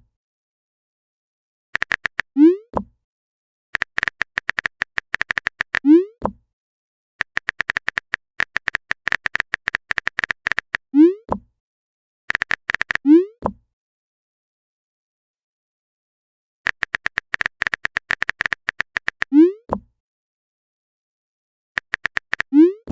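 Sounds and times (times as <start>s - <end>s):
keyboard typing clicks: 1.8s - 2.3s, 3.8s - 5.8s, 7.2s - 10.8s, 12.3s - 13.0s, 16.7s - 19.3s, 21.8s - 22.5s.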